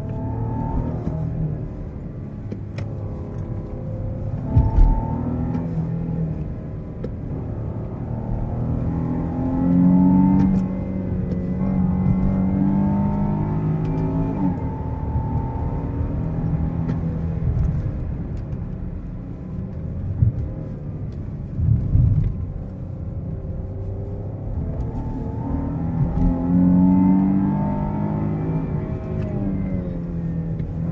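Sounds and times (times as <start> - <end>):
car engine revving under load: 0.0 - 30.9.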